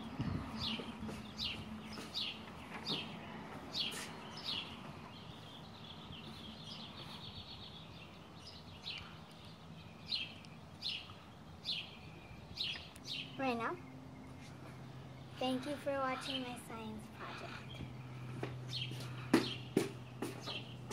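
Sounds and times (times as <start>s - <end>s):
bird chirping: 0.0s - 20.9s.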